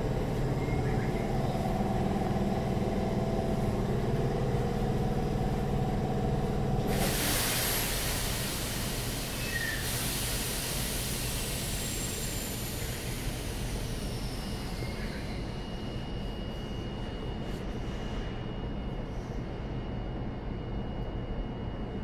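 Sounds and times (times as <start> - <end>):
wheels rushing on rail: 0.0 - 15.7
loud hiss: 6.9 - 14.1.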